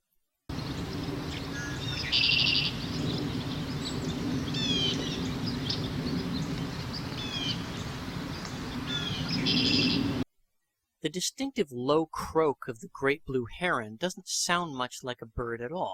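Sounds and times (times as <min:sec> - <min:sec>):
bird buzzy rattling trill: 0:00.5 - 0:10.2
bird descending notes: 0:00.5 - 0:10.2
low background rumble: 0:00.5 - 0:10.2.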